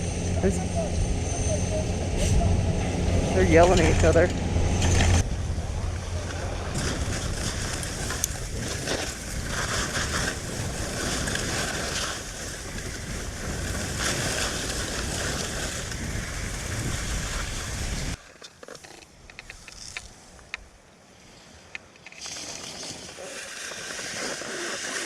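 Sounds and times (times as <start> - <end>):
wind buffeting microphone: 0.0 - 18.2.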